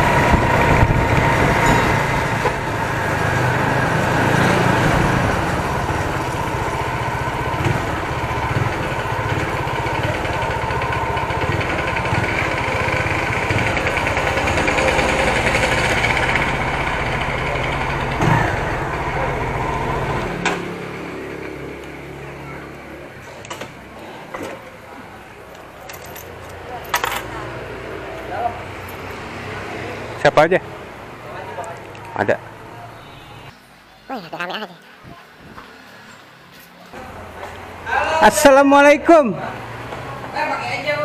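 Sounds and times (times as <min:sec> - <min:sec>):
wind noise on microphone: 0:00.0 - 0:02.8, 0:35.0 - 0:35.6
motorcycle engine running: 0:00.0 - 0:31.3.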